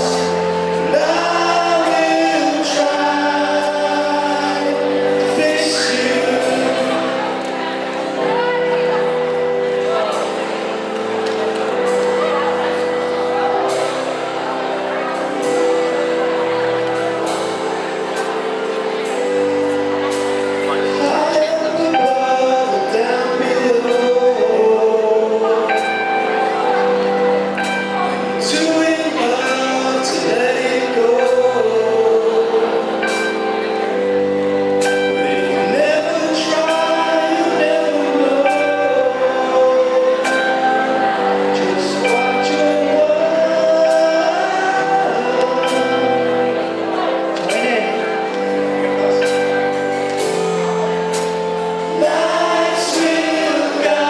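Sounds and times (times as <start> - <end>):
live band playing: 0.0 - 54.0
person singing: 0.0 - 54.0.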